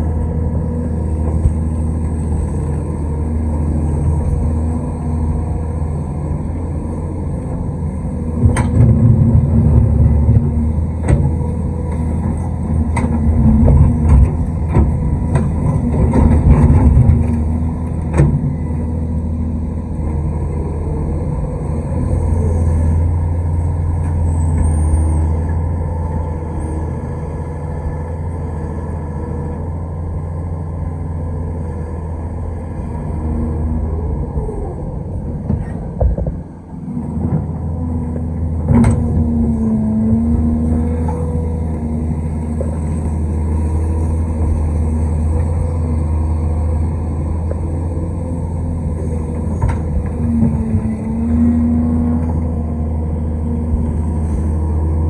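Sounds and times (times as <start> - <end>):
excavator diesel engine: 0.0 - 55.0.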